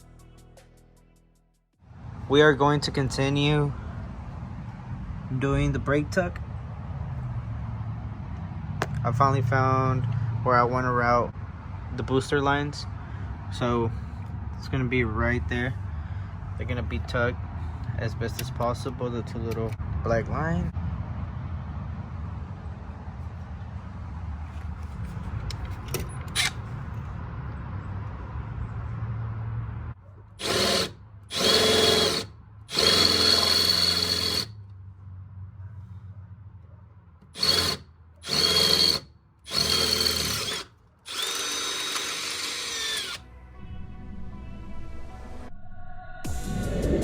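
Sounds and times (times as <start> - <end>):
power drill whine: 30.4 - 34.5, 37.4 - 43.2.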